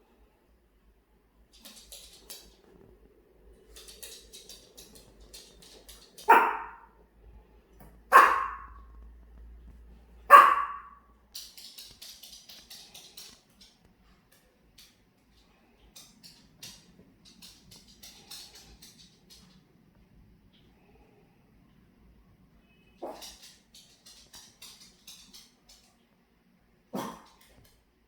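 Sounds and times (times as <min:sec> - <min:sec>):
small dog barking: 0:06.2 - 0:07.0, 0:08.1 - 0:08.9, 0:10.3 - 0:11.1, 0:23.0 - 0:23.4, 0:26.9 - 0:27.4.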